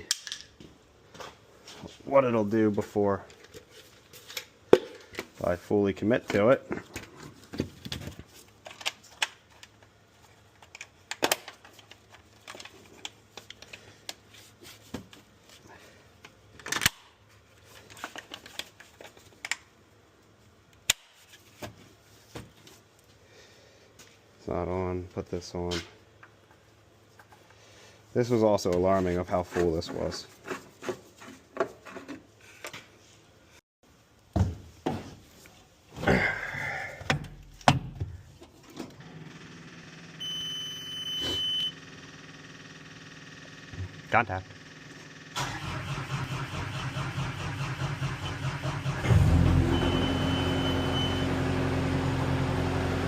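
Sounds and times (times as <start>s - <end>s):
high warning buzzer: 40.2s - 41.8s.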